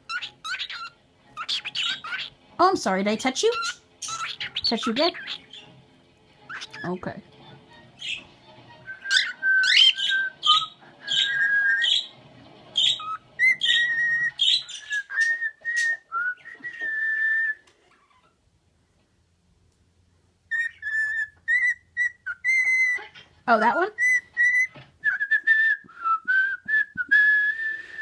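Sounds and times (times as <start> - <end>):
bird whistling and chirping: 0.0 - 2.3, 3.5 - 5.7, 6.5 - 7.0, 8.0 - 12.2, 12.8 - 18.3, 20.5 - 23.2, 23.9 - 28.0.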